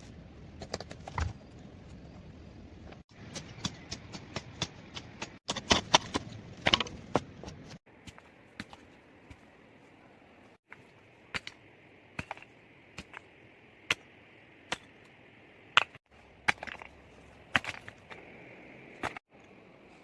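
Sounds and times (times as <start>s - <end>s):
wood being chopped: 3.2s - 7.3s.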